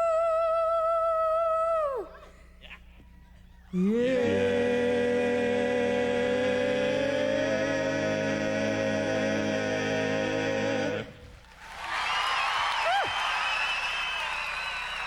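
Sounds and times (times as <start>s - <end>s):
vocal group holding a chord: 3.8s - 11.5s.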